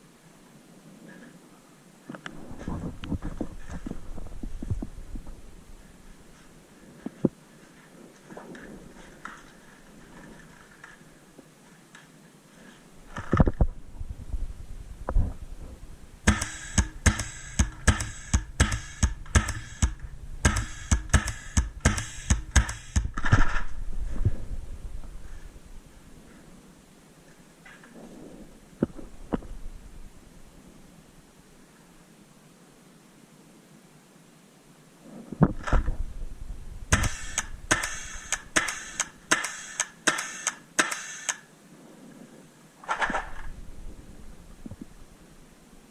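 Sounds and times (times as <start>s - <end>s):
rustling movement: 2.0s - 16.2s
low thuds: 13.6s - 25.2s
paintball marker firing: 16.3s - 23.5s, 36.9s - 41.5s.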